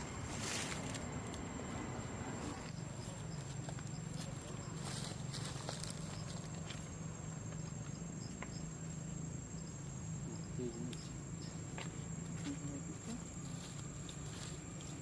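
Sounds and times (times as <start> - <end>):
insect drone: 0.0 - 15.0
low steady hum: 0.0 - 15.0.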